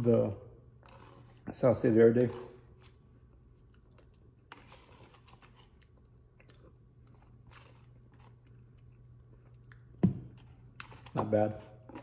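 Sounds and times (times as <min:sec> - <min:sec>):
faint chewing: 0:02.6 - 0:11.1.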